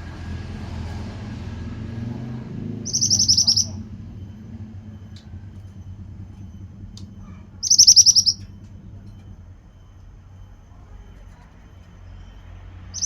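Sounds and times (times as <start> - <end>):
steady low hum: 0.0 - 13.0
bird trill: 2.8 - 4.2, 7.1 - 9.4, 12.0 - 13.0.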